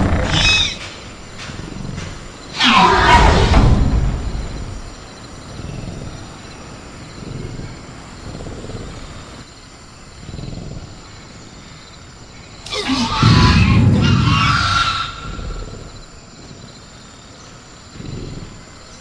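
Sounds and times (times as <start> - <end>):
loud screeching call: 0.0 - 0.9, 2.6 - 3.9, 12.6 - 15.7
crickets chirring: 0.0 - 19.0
creature growling low: 12.7 - 16.0.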